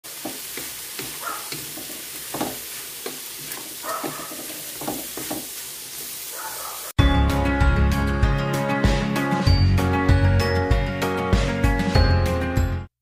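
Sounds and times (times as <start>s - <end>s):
food sizzling in a wok: 0.0s - 7.0s
wooden spatula scraping a pan: 0.1s - 6.3s.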